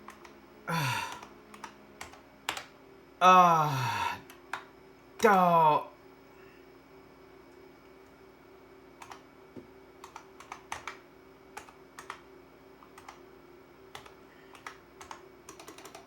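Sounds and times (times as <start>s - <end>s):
keyboard keys clicking: 0.0s - 0.4s, 1.0s - 2.7s, 9.0s - 9.2s, 10.0s - 11.0s, 11.6s - 12.2s, 12.8s - 13.2s, 13.9s - 16.0s
faint steady hum: 0.0s - 16.0s.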